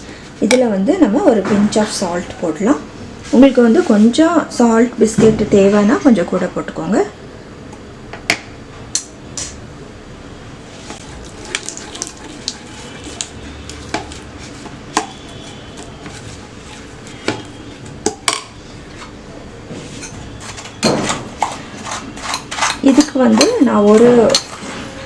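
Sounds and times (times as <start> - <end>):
spoon stirring dough in bowl: 10.7 - 24.8.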